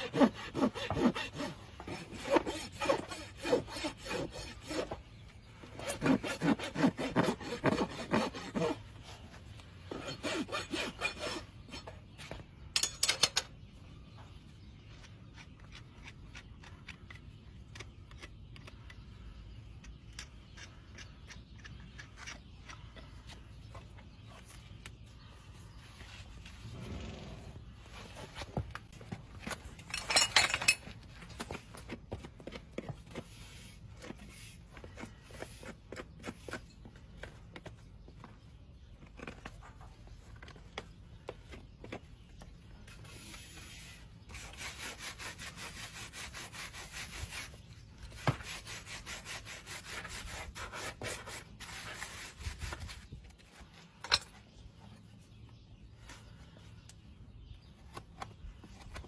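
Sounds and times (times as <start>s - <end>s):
hoof tools rasping a hoof: 0.0s - 12.4s, 19.7s - 24.6s, 27.9s - 38.4s, 42.8s - 53.1s.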